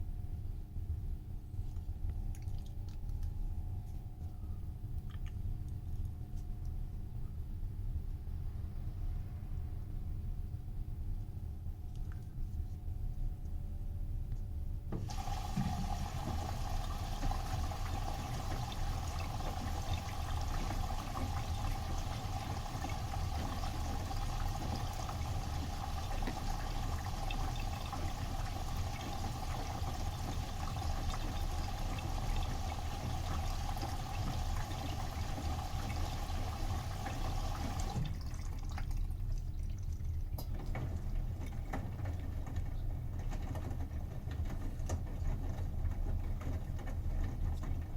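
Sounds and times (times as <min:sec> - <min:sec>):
washing machine filling with water: 0:14.9 - 0:47.9
inlet valve whine: 0:15.0 - 0:38.1.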